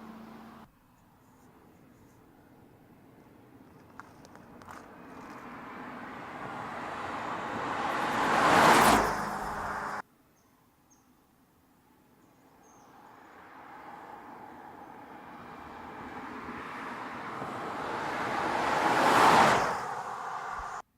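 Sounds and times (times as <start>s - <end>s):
car approaching: 0.0s - 0.7s, 3.2s - 10.0s, 12.9s - 20.8s
car driving past: 5.2s - 10.0s, 12.9s - 20.8s.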